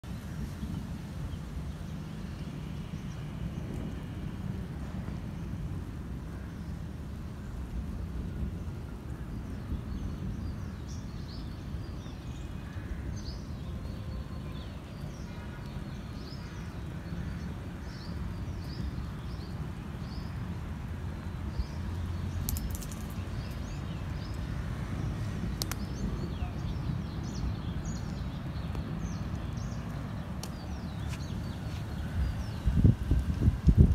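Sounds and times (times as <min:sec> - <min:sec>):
low outdoor rumble: 0:00.0 - 0:33.9
small birds chirping: 0:08.3 - 0:33.9.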